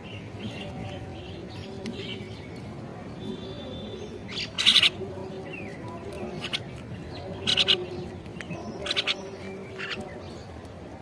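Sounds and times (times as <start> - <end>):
bird calling: 3.2 - 10.5.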